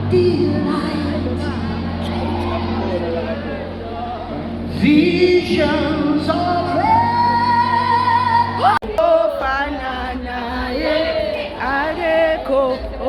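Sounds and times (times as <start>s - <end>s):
woman singing song: 6.7s - 13.0s.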